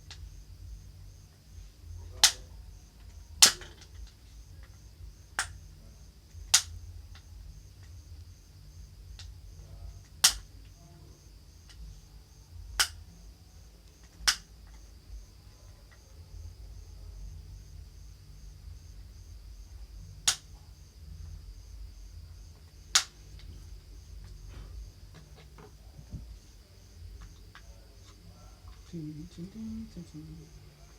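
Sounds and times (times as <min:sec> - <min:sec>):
faint high-pitched pulsing whine: 0:00.0 - 0:30.9
sharp clicks: 0:06.5 - 0:08.0, 0:10.0 - 0:10.5, 0:12.8 - 0:13.0, 0:13.9 - 0:14.8, 0:20.2 - 0:20.5, 0:22.9 - 0:23.5
low hum: 0:14.5 - 0:30.9.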